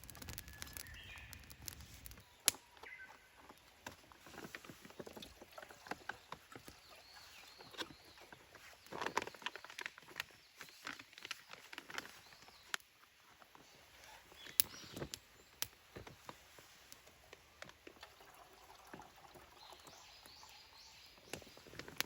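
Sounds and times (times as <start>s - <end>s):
dry twigs snapping: 0.0s - 3.0s, 14.4s - 16.1s
faint bird chirps: 0.4s - 3.4s, 19.5s - 22.0s.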